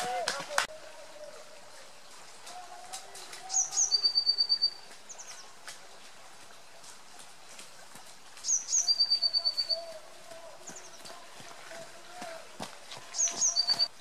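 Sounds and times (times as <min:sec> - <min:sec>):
songbird singing with trill: 0:03.5 - 0:05.4, 0:08.4 - 0:10.0, 0:13.2 - 0:13.9.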